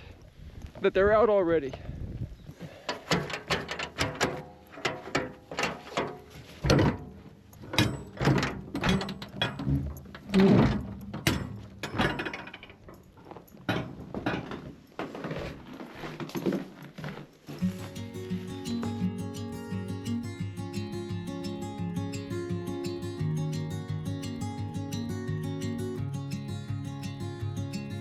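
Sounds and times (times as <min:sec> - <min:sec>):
mechanical clunks and rattles: 0:02.9 - 0:14.8.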